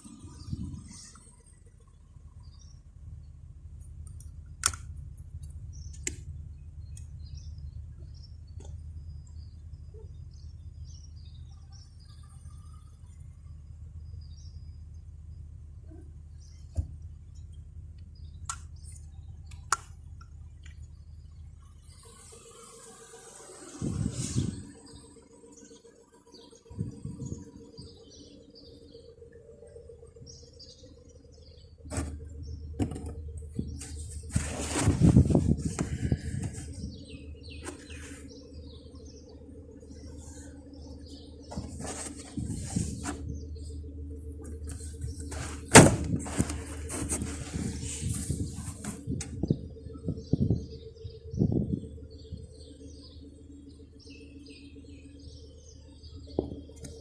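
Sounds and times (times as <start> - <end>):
steady low rumble: 0.0 - 21.9, 26.5 - 57.0
car engine idling: 0.0 - 22.2, 24.4 - 57.0
birds chirping: 0.0 - 57.0
sharp clicks: 4.1 - 6.2
rustling: 33.7 - 37.0, 41.5 - 43.4, 44.6 - 49.2.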